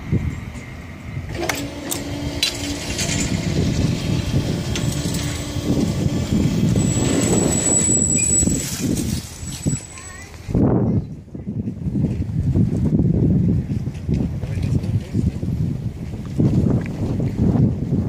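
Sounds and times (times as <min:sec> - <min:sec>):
train rumble: 0:00.0 - 0:12.3
steady hum: 0:01.0 - 0:09.9
thin high-pitched whine: 0:02.6 - 0:10.4.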